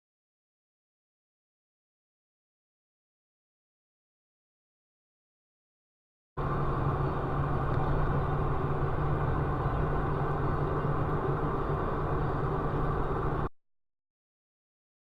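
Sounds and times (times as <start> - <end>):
vehicle engine hum and rumble: 6.4 - 13.5.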